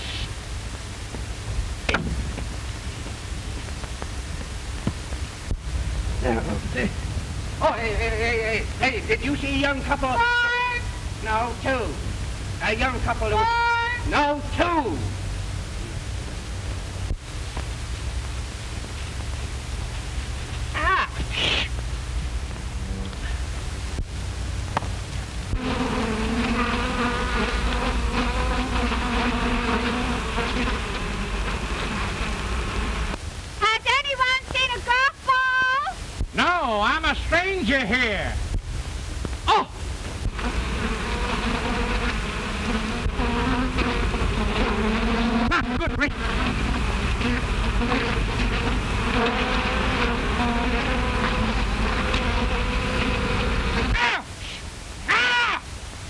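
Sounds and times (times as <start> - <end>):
old film soundtrack noise: 0.0 - 26.7
bees buzzing: 24.8 - 33.2, 40.2 - 54.0.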